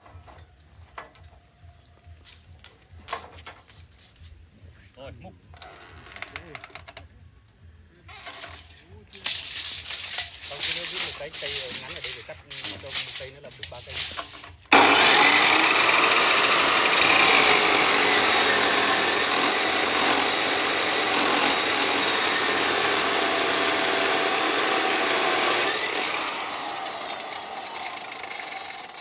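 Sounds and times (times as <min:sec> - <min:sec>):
chainsaw cutting timber: 0:14.1 - 0:29.0.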